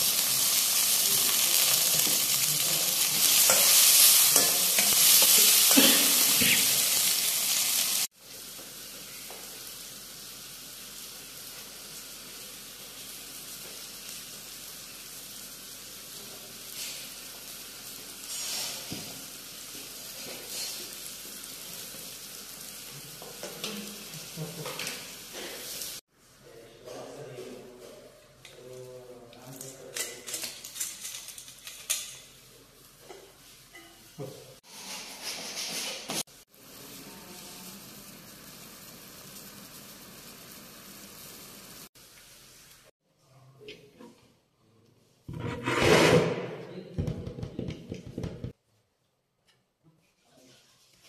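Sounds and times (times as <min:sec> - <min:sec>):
vegetables sizzling loudly: 0:00.0 - 0:26.0, 0:36.2 - 0:42.9.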